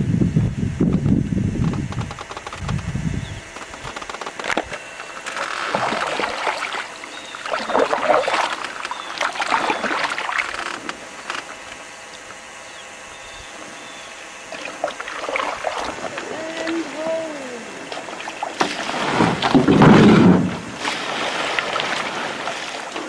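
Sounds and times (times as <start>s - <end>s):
canoe paddles splashing in water: 5.2s - 11.6s, 14.5s - 23.0s.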